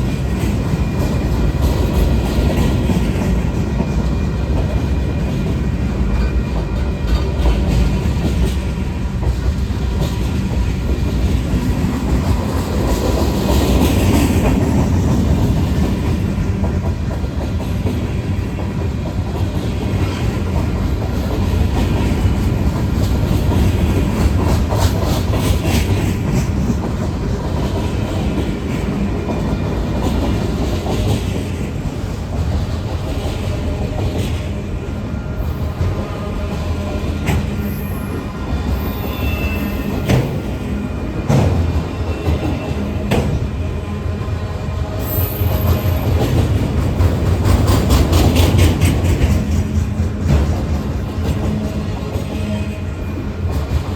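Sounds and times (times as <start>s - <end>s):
freight train rumbling: 0.0s - 53.9s
wheels clacking over rail joints: 45.4s - 53.9s.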